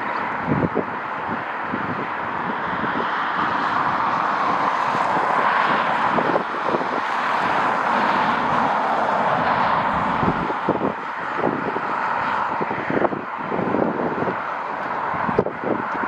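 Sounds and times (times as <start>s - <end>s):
jet engines rushing: 0.0s - 16.0s
wind buffeting microphone: 0.0s - 16.0s.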